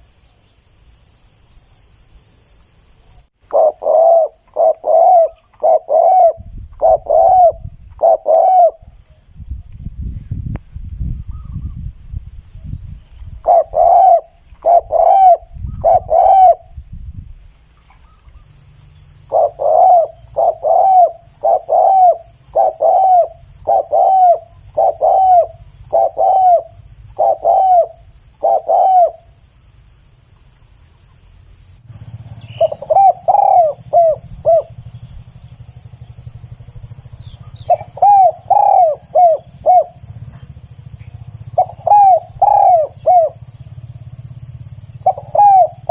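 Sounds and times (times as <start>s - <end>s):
faint high pulsing insect buzz: 0.0s - 10.1s, 18.1s - 45.9s
dove cooing: 3.5s - 9.0s, 13.4s - 16.8s, 19.3s - 29.4s, 32.0s - 45.9s.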